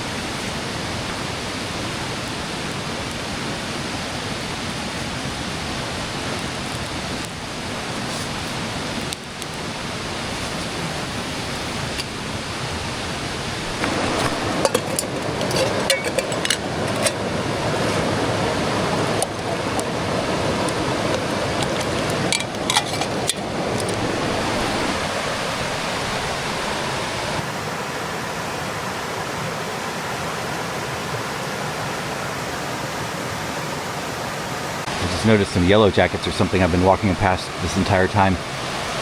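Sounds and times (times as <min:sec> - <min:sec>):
creek water flowing: 0:00.0 - 0:39.0
sharp clicks and knocks: 0:13.8 - 0:17.2.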